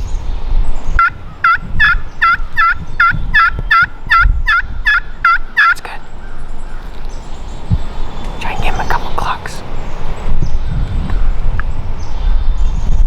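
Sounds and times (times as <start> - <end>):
low wind rumble: 0.0 - 13.0
turkey yelps: 1.0 - 5.8.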